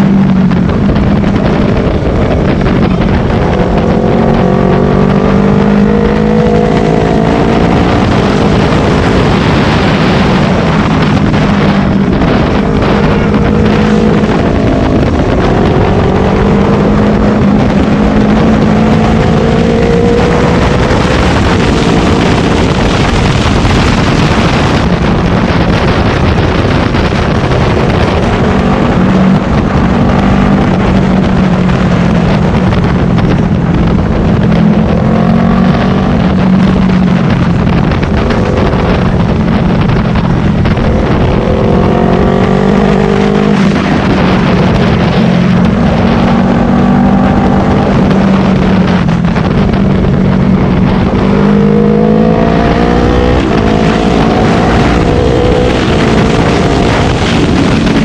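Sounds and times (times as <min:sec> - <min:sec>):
motorcycle engine accelerating: 0:00.0 - 0:58.0
wind noise on microphone: 0:00.0 - 0:58.0.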